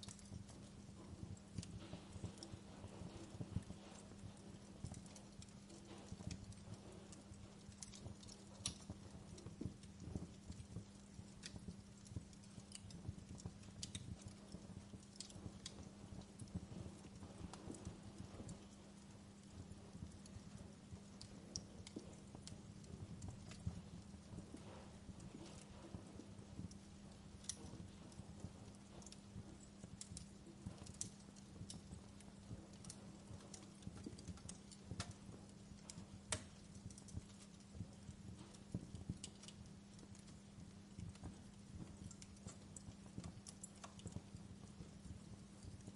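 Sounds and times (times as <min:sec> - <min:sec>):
soft low hum: 0:00.0 - 0:45.9
wood fire crackling and popping: 0:00.0 - 0:45.9
wood popping and snapping: 0:28.7 - 0:38.0.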